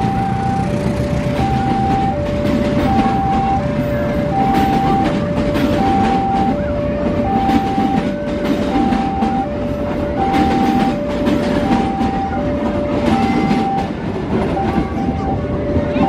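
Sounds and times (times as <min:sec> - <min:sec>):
level-crossing alarm two-tone: 0:00.0 - 0:16.0
train wheels clattering: 0:01.2 - 0:15.2.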